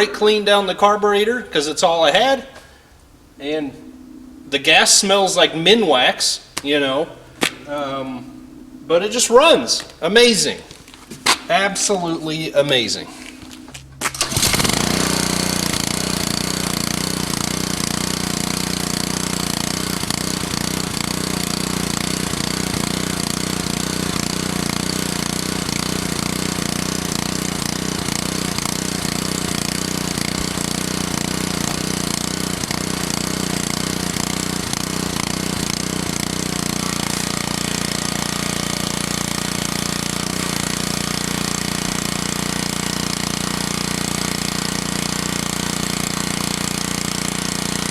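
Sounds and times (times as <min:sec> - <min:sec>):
small gasoline engine running: 0:13.5 - 0:47.9
water spray hissing: 0:14.2 - 0:47.9.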